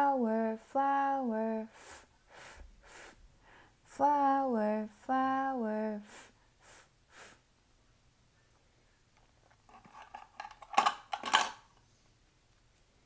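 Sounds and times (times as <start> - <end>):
small objects rustling and clicking: 9.4 - 11.8.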